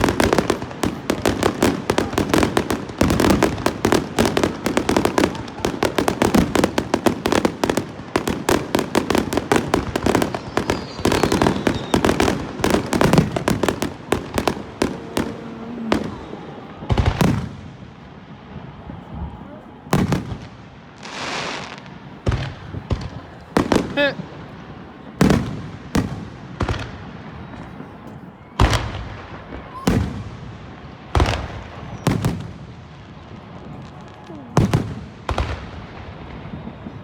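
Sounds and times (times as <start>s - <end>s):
fireworks bangs and crackles: 0.0s - 37.0s
heavy firework boom: 9.0s - 18.0s, 22.2s - 27.9s, 28.6s - 32.7s.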